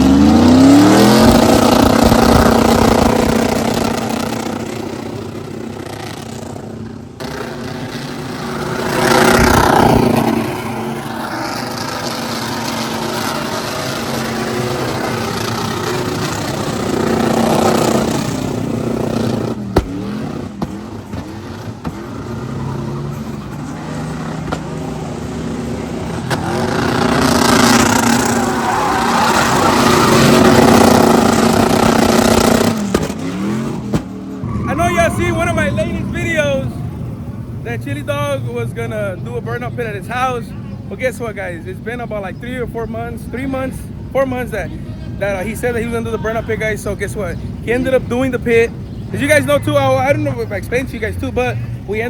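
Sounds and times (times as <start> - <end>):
engine revving hard: 0.0 - 37.3.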